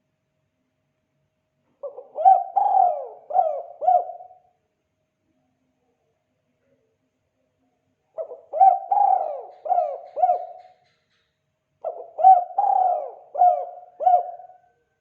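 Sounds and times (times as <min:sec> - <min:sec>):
dove cooing: 0:01.8 - 0:04.5, 0:08.2 - 0:10.9, 0:11.8 - 0:14.8.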